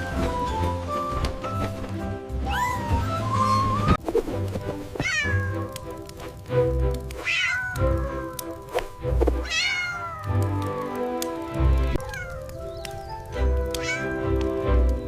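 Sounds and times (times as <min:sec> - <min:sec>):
cat meowing: 0:02.5 - 0:04.0, 0:05.0 - 0:06.0, 0:07.2 - 0:08.7, 0:09.4 - 0:10.6, 0:12.0 - 0:12.5, 0:13.7 - 0:14.3.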